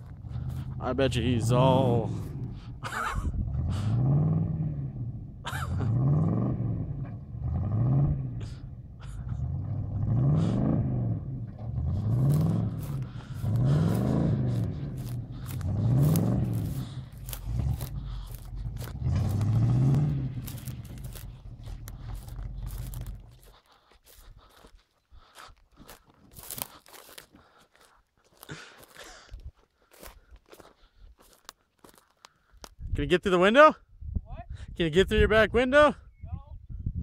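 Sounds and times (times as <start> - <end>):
truck engine revving: 0.0 - 24.7.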